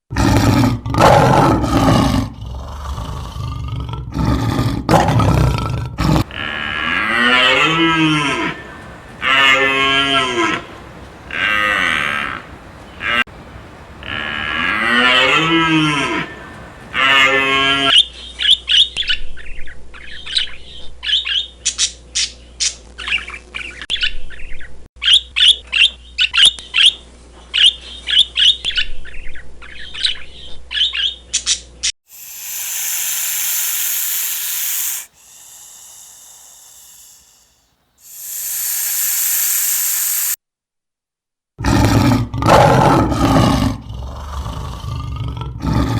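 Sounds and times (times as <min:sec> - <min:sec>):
cow mooing: 0:06.2 - 0:13.2, 0:13.9 - 0:17.9
loud hissing bursts: 0:06.3 - 0:17.0, 0:32.1 - 0:40.4
rapid high-pitched animal calls: 0:32.1 - 0:40.4.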